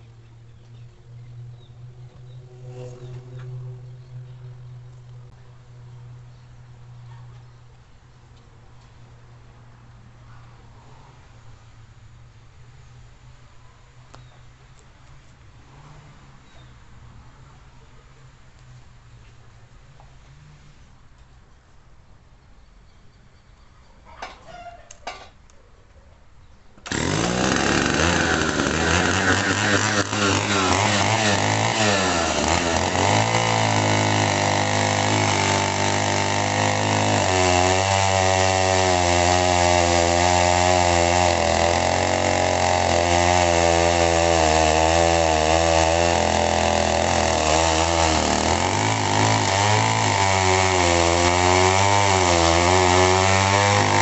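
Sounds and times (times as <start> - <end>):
chainsaw cutting logs: 26.8 - 54.0.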